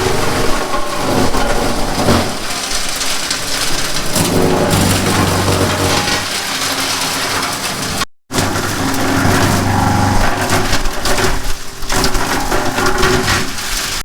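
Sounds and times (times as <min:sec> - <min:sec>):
wood chipper hum: 0:00.0 - 0:13.2
wood cracking and splintering: 0:00.4 - 0:09.6.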